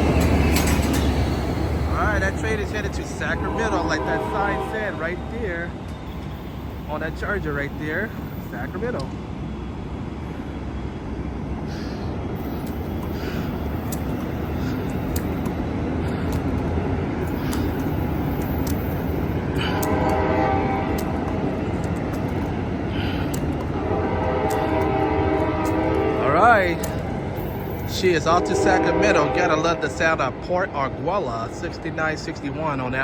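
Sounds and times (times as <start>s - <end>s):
passenger train rumbling: 0.0s - 33.0s
train horn: 1.9s - 5.8s, 18.8s - 21.5s, 23.7s - 30.3s.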